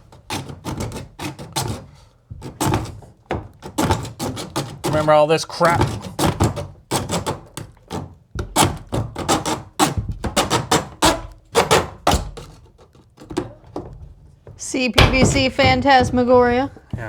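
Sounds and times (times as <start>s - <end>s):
sharp knocks and clatters: 0.0s - 17.0s.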